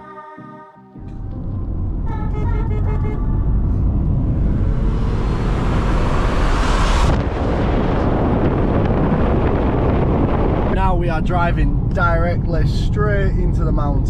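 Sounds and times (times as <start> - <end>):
music: 0.0 - 3.6
road and wind rumble: 1.0 - 14.0.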